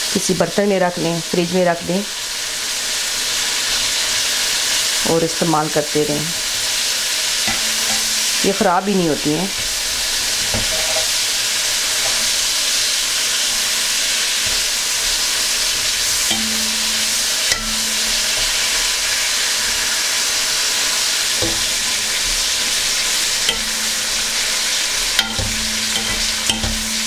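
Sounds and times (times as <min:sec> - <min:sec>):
chillies sizzling in hot oil: 0:00.0 - 0:27.0
wire skimmer clicks in pan: 0:25.1 - 0:27.0.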